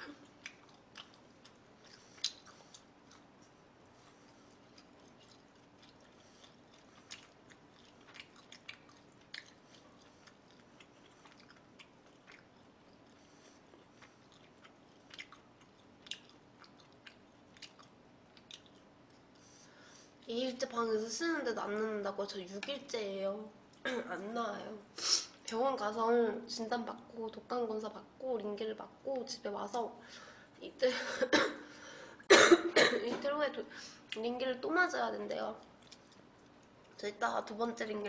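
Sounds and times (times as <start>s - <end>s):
low steady room hum: 0.0s - 38.0s
faint chewing mouth clicks: 0.2s - 19.6s, 35.6s - 37.0s.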